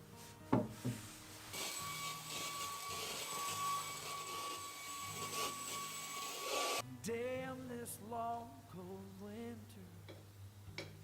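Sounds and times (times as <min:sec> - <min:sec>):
small electric motor whining: 0:01.5 - 0:06.8.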